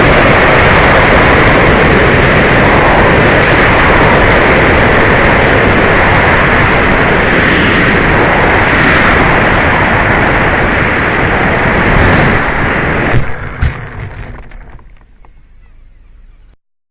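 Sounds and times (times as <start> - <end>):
rc plane motor noise and air rush: 0.0 - 15.6
plane touching down knocks: 13.1 - 15.5.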